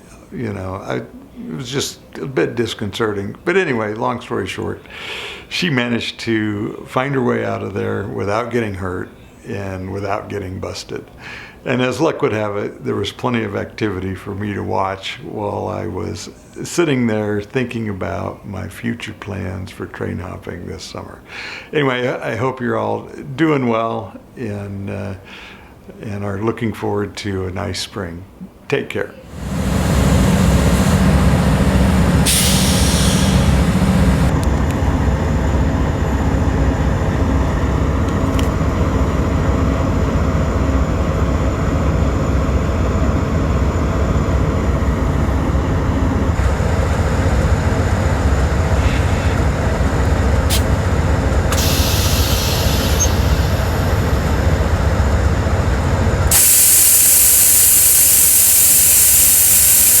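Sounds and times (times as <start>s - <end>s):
train hissing: 29.3s - 34.4s, 43.8s - 60.0s
train rumbling: 29.3s - 56.4s.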